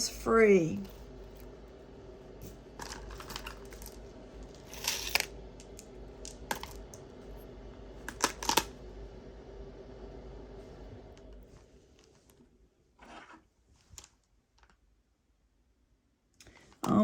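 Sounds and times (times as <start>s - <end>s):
jewelry clicking and clinking: 2.4s - 7.0s.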